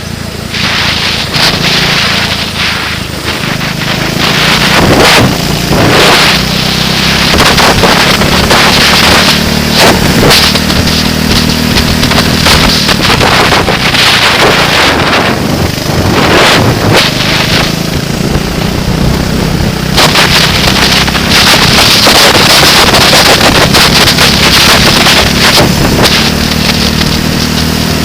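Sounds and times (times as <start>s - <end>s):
racing vehicle engine: 0.0s - 28.0s
wind buffeting the microphone: 0.4s - 28.0s.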